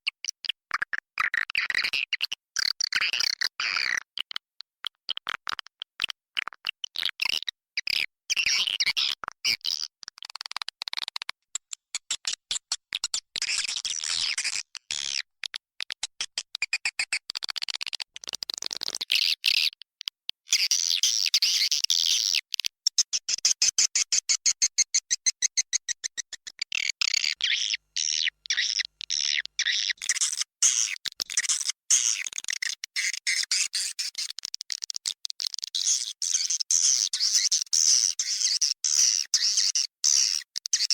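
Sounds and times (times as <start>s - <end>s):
swiftlet clicks and chirps: 20.6s - 40.9s.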